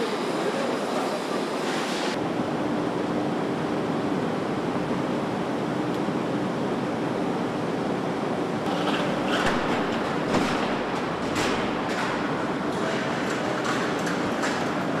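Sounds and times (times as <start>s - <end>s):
factory machinery hiss: 0.0s - 2.2s.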